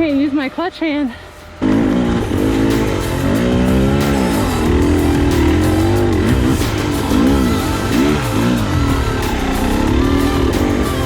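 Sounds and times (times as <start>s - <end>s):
dirt bike engine revving: 1.6s - 11.0s.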